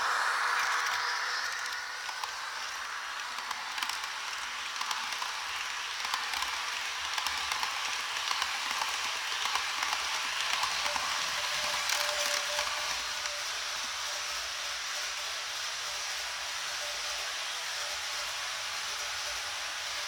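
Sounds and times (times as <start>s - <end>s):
model trains running on track: 0.0s - 20.0s
steady hiss: 0.0s - 20.0s
small irregular clicks: 3.2s - 17.2s.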